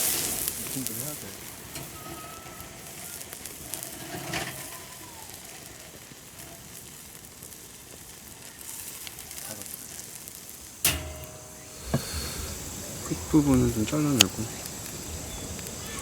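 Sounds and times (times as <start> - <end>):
meat sizzling on a grill: 0.0 - 16.0
sharp clack: 10.8 - 12.7.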